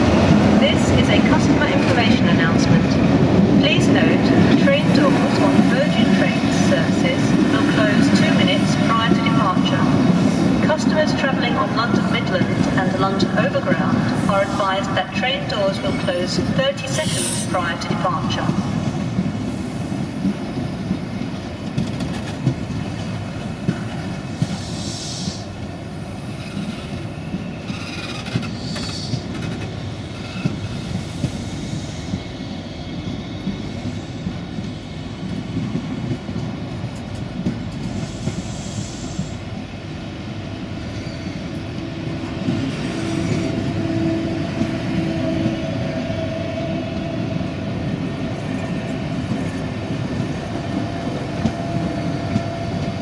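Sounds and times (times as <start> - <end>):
train coaches rumbling past: 0.0 - 53.0.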